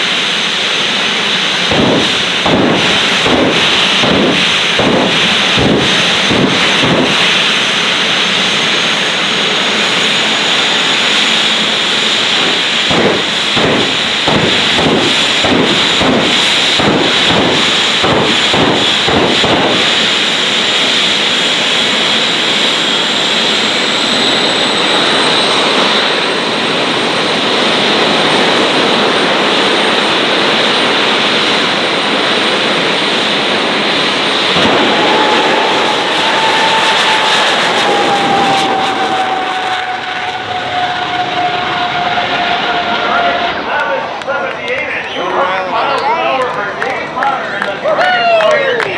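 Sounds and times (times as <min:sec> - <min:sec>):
jet engine whining and hissing: 0:00.0 - 0:48.9
rapid even bangs: 0:01.6 - 0:07.6, 0:12.8 - 0:19.9.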